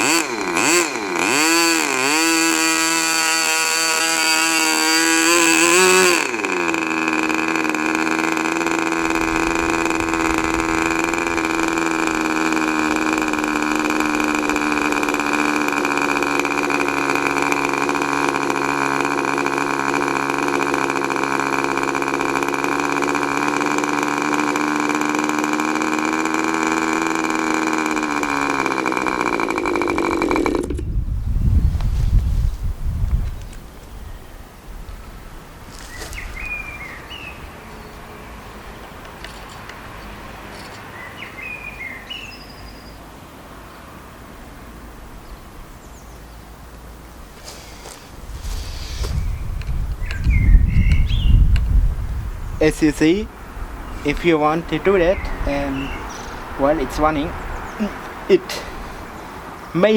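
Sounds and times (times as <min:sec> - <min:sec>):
model glow engine running: 0:00.0 - 0:31.1, 0:53.9 - 0:58.9, 0:59.7 - 0:59.9.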